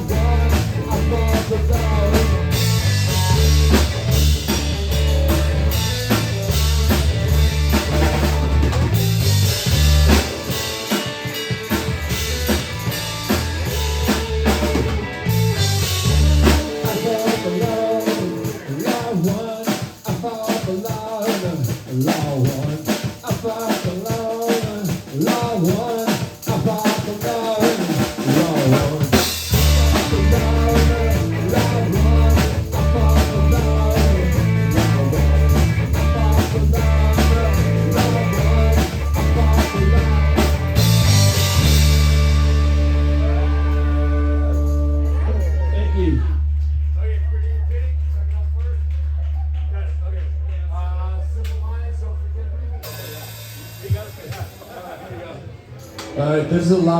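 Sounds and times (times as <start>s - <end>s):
heavy bass line: 0.0s - 18.8s, 29.0s - 54.7s
drum kit: 0.0s - 47.0s, 52.8s - 56.9s
rock music: 0.0s - 47.0s, 52.8s - 55.0s, 55.6s - 56.9s.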